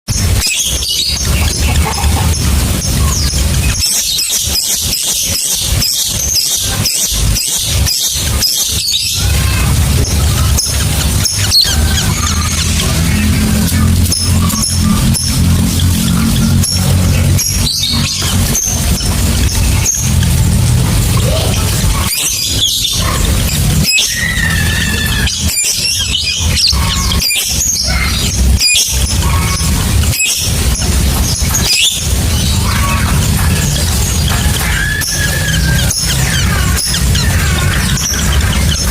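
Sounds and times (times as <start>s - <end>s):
low hum: 0.1s - 38.9s.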